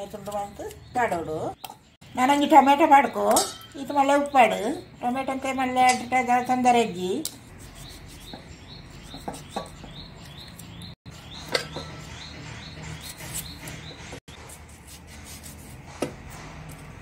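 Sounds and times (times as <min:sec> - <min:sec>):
bird chirping: 0:07.5 - 0:14.5.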